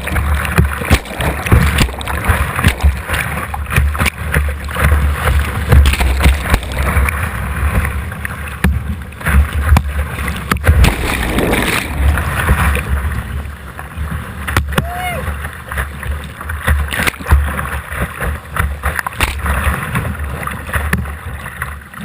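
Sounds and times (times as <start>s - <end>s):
whitewater rushing: 0.0s - 8.6s, 9.2s - 15.8s
paddle splashes: 0.0s - 22.0s.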